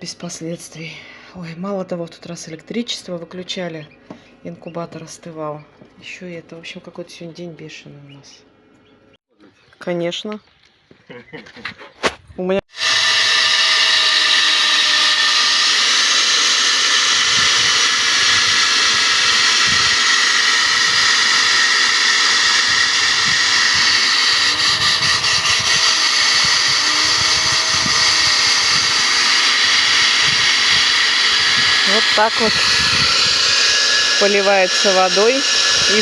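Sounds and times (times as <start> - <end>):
core drill grinding through wall: 12.7 - 36.0.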